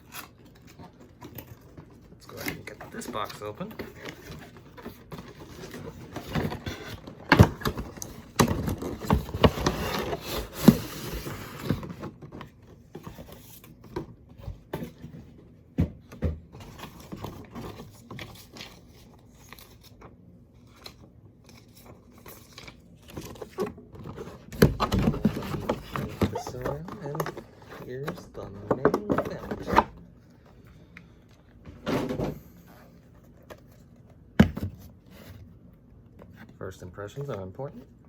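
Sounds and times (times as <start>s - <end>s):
cardboard box being opened: 1.9s - 13.8s, 20.9s - 30.0s.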